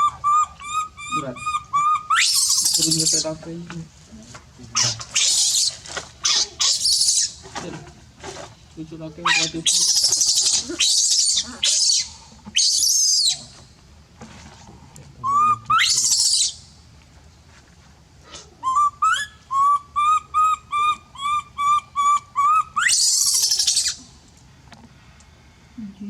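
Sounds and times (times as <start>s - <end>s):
baby monkey shrieking: 0.0s - 3.4s, 4.7s - 7.4s, 9.2s - 13.5s, 15.2s - 16.6s, 18.6s - 24.0s
baby monkey squeaking: 0.0s - 3.4s, 4.7s - 7.4s, 9.2s - 13.5s, 15.2s - 16.6s, 18.6s - 24.0s.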